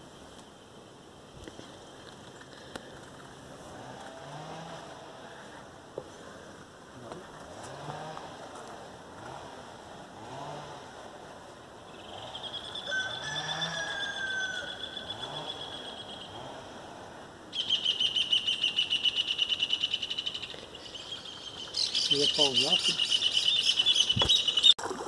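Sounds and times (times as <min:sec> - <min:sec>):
fast pulsing bird trill: 0:17.5 - 0:24.8.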